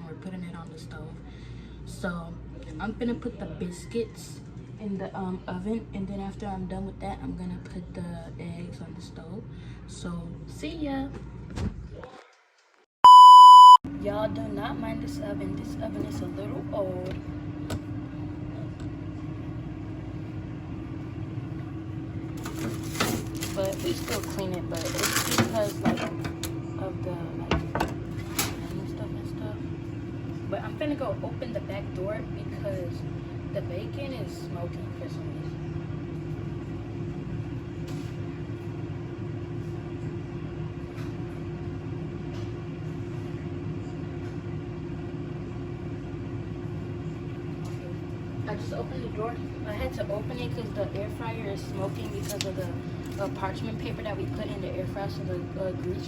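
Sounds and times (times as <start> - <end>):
kitchen appliance fan humming: 13.1 - 56.0.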